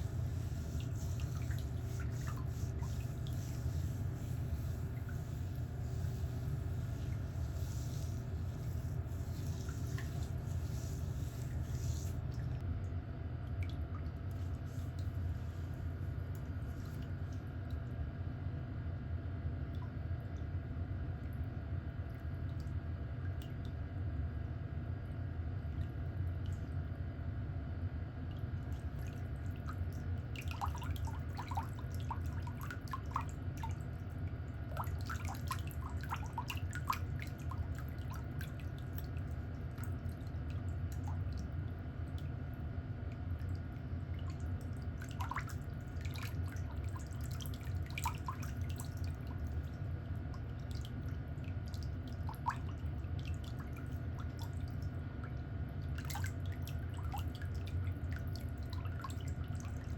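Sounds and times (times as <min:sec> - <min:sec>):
low hum: 0:00.0 - 0:17.8.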